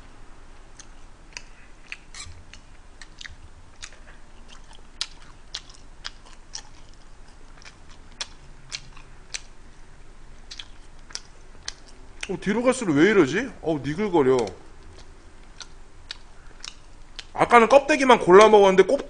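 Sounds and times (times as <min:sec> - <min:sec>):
person chewing with wet mouth clicks: 0:00.7 - 0:09.6, 0:10.5 - 0:12.4, 0:14.4 - 0:17.4.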